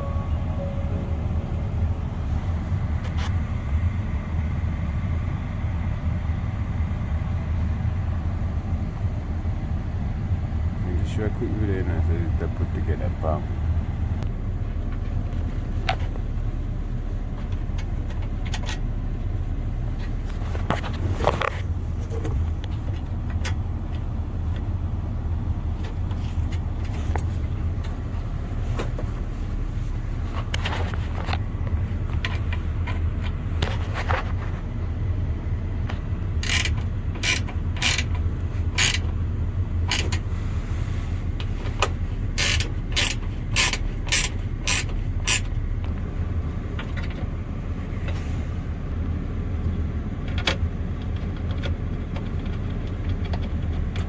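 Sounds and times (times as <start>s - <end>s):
steady low hum: 0.0s - 51.0s
tools clicking and scraping: 36.4s - 39.1s, 39.9s - 40.2s, 41.6s - 45.6s.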